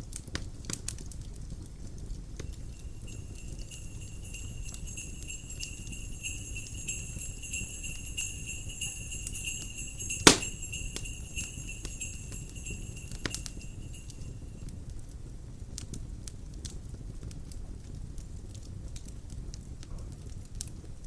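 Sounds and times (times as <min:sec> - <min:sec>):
fire crackling: 0:02.4 - 0:14.6
jingle bells shaking: 0:02.4 - 0:14.6.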